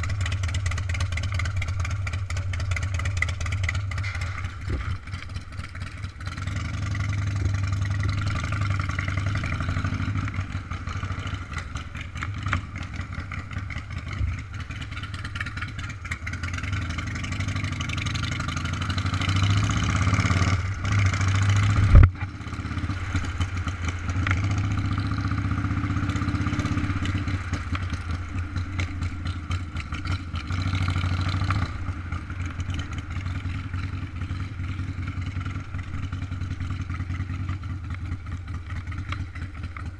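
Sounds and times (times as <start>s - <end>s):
motorcycle engine running: 0.0s - 39.9s
wind and road noise: 0.0s - 39.9s
sharp thump: 21.8s - 22.3s.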